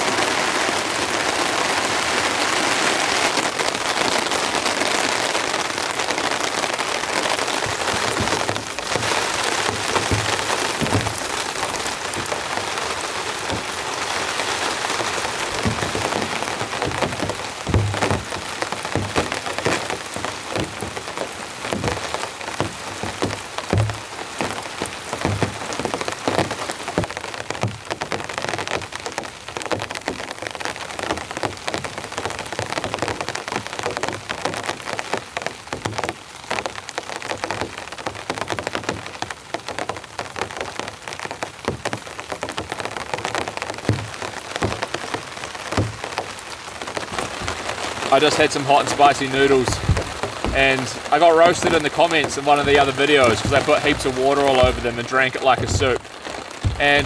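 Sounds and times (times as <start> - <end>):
heavy rain pattering on a tarp: 0.0 - 57.0
water pouring off a tarp: 0.0 - 57.0
heavy drops thudding: 7.6 - 27.8, 43.7 - 46.4, 47.0 - 57.0.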